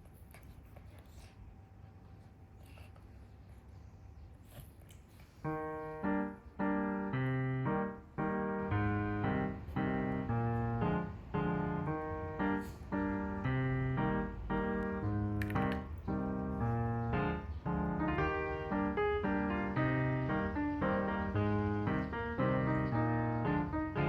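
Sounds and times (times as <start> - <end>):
piano music: 5.4 - 24.0.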